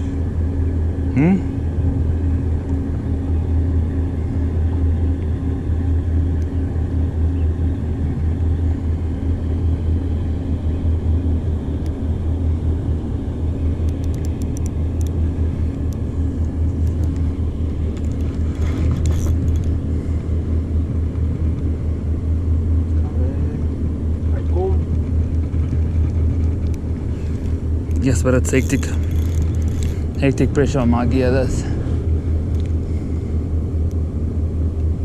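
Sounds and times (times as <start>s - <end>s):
low engine hum: 0.0s - 35.0s
light clicks: 13.8s - 15.2s.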